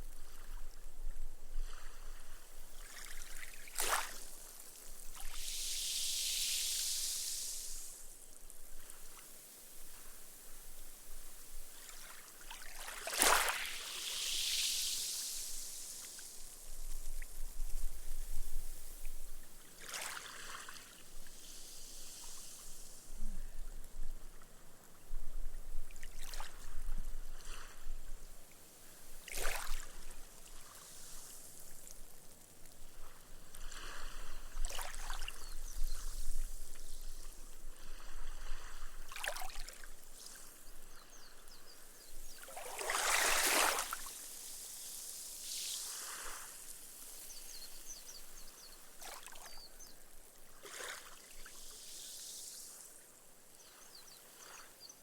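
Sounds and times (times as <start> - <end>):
gentle waves lapping on sand: 0.0 - 25.1, 25.8 - 55.0
foam fizzing: 4.9 - 8.1.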